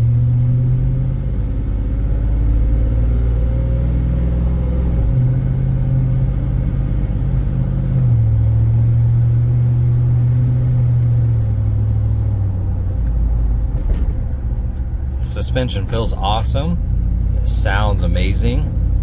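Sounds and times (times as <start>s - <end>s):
car engine from inside cabin: 0.0s - 19.0s.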